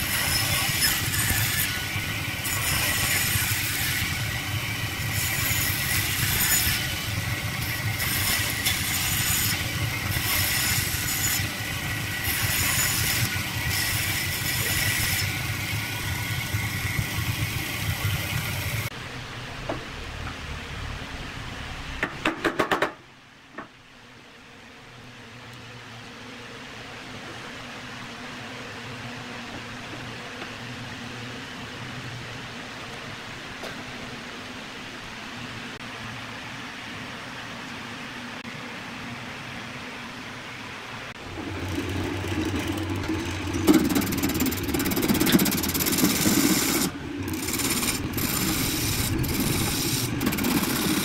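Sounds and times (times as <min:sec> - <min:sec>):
band saw cutting: 0:00.0 - 0:18.9, 0:41.2 - 0:51.0
sharp knocks: 0:22.0 - 0:23.0.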